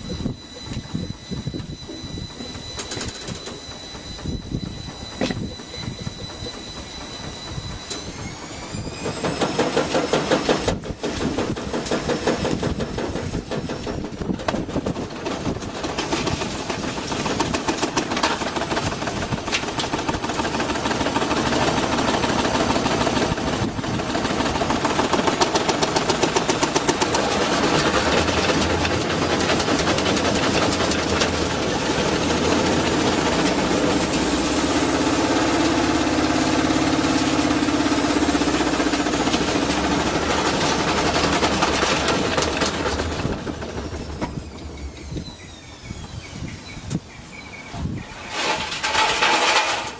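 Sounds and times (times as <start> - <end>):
spinning drum humming drone: 0.0 - 47.5
knocking and rattling in drum: 9.0 - 33.8, 38.3 - 45.1, 48.3 - 49.9.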